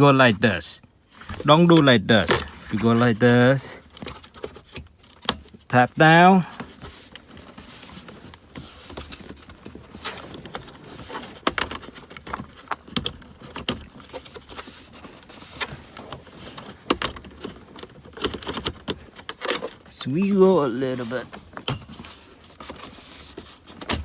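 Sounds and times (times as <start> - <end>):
plastic panel clicks and rattles: 9.1 - 14.6, 15.5 - 19.9.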